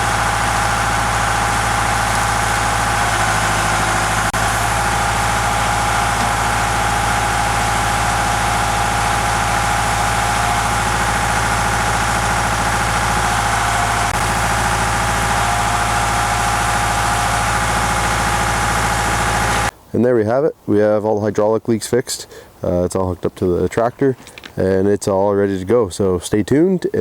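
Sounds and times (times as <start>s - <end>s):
tractor diesel engine idling: 0.0s - 19.7s.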